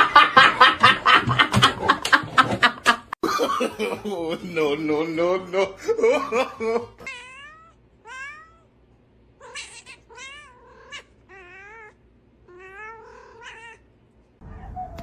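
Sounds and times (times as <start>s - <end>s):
animal wavering cries: 9.4s - 13.8s.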